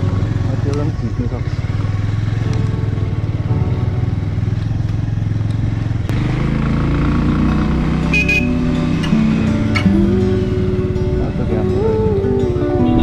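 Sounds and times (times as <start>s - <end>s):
motorcycle engine running: 0.0s - 13.0s
music with held stepping notes: 2.4s - 4.1s, 8.1s - 13.0s.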